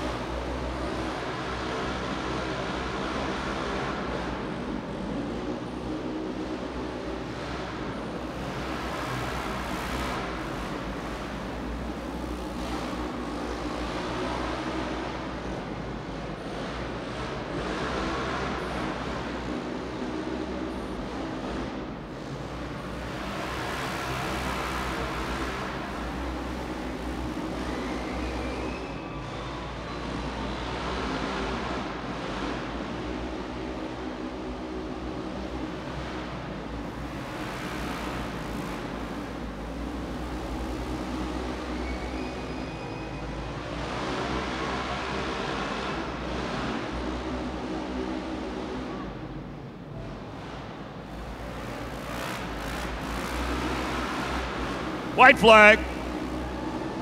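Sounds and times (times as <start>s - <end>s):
off-road vehicle engines racing: 0.0s - 57.0s
engines revving: 50.4s - 55.2s.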